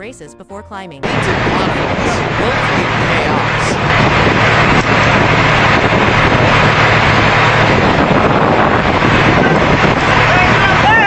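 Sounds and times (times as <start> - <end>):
loud steady rushing noise: 1.0 - 11.0.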